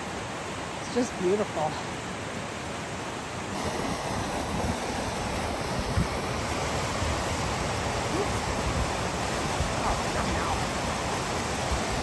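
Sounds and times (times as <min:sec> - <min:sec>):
river rushing over cascades: 0:00.0 - 0:12.0.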